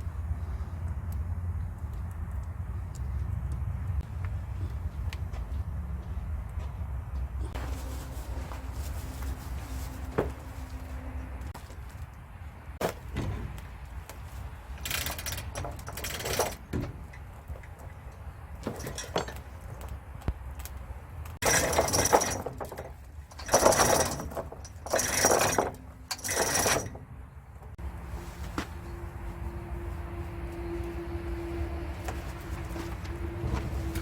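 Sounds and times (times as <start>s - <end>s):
metal tools rattling and clinking: 14.8s - 19.8s, 21.4s - 27.0s.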